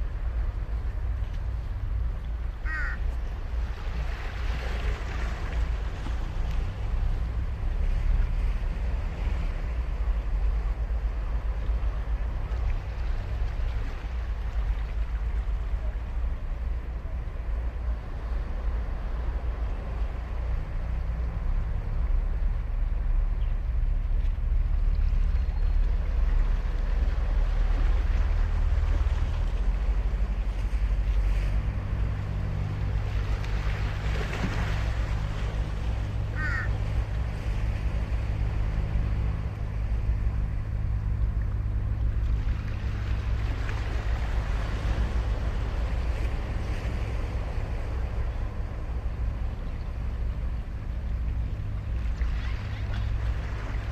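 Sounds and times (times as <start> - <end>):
ocean surf on beach: 0.0 - 25.2, 25.8 - 53.9
wind rumble on microphone: 0.0 - 53.9
crow cawing: 2.6 - 3.1, 36.3 - 36.8.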